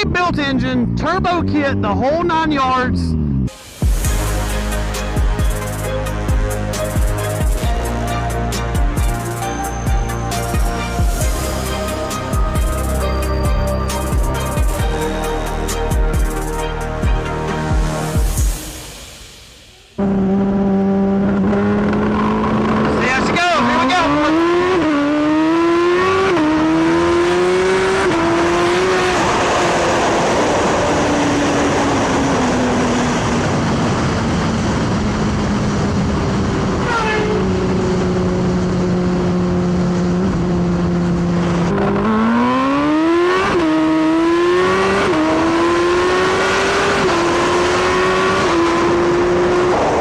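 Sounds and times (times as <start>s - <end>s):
motorcycle engine revving through gears: 20.0s - 50.0s.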